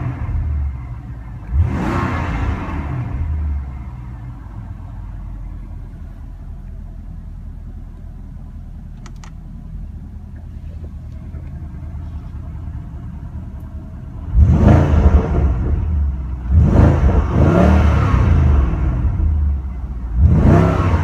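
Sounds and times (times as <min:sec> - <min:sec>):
car engine revving and idling: 0:00.0 - 0:21.0
short clicks: 0:09.0 - 0:09.4.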